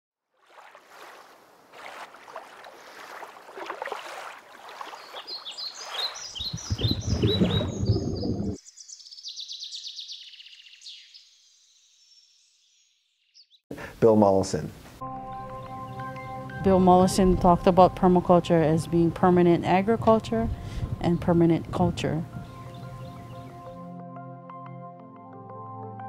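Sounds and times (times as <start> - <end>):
birds chirping: 2.2 - 13.6, 15.1 - 18.7, 19.3 - 23.9
fast high bird trill: 5.0 - 8.6.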